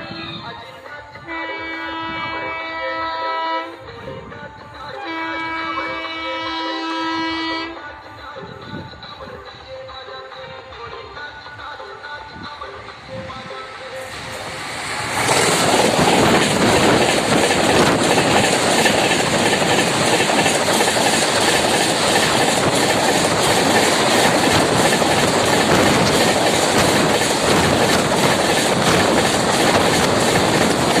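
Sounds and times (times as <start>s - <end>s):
train rushing past: 0.0s - 31.0s
train wheel clatter: 12.7s - 31.0s.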